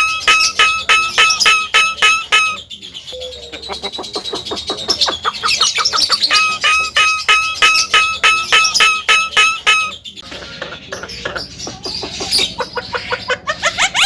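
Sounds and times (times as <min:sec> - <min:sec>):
bird ringing notes: 0:00.0 - 0:05.0, 0:05.6 - 0:10.2
bird rattling chatter: 0:03.9 - 0:10.6.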